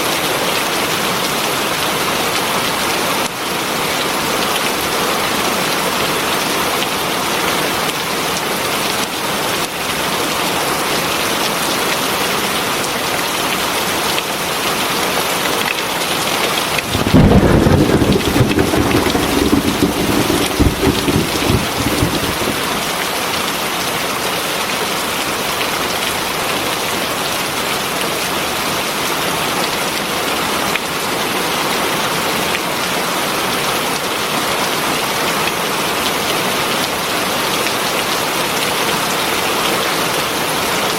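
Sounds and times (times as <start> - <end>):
heavy rain falling: 16.6 - 23.3
thunder rumbling: 16.7 - 23.0.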